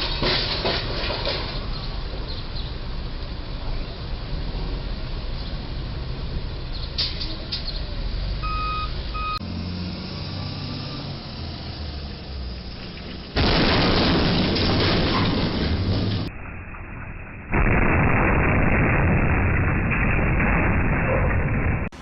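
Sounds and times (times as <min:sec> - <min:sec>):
heavy truck engine: 0:00.0 - 0:16.3
road noise: 0:00.0 - 0:17.7
reversing alarm beeping: 0:08.4 - 0:09.5
loud noisy rumble: 0:09.4 - 0:22.0.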